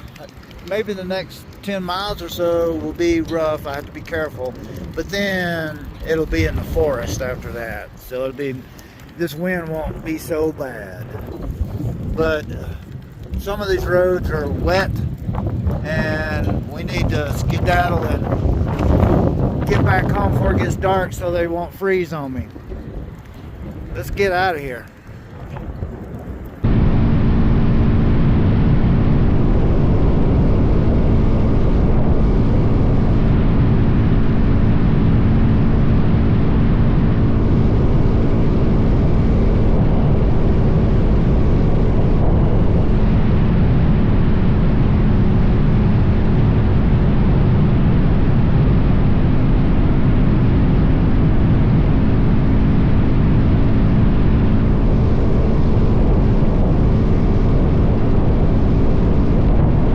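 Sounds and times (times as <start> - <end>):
wind rush on microphone: 0.0 - 59.9
motorcycle engine cruising: 25.4 - 59.9.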